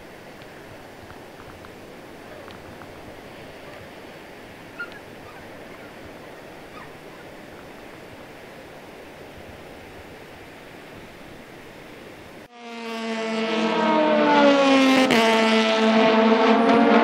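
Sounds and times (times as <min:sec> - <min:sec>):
ocean surf: 0:00.0 - 0:12.5.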